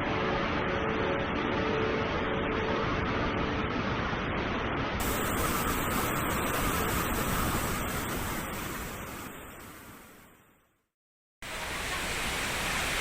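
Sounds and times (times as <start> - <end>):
waterfall rushing: 5.0 - 9.8.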